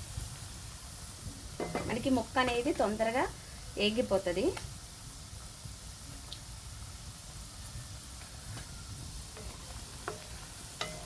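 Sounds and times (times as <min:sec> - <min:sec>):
chicken frying in oil: 0:00.0 - 0:11.0.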